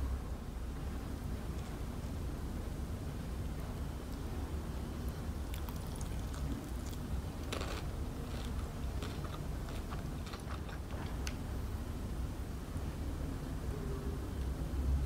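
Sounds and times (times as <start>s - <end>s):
chewing crispy fried chicken: 5.0s - 11.4s.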